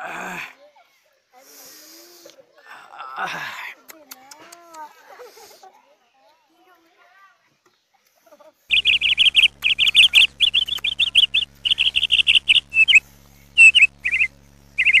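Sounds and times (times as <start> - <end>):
small bird chirping rapidly: 8.7 - 15.0.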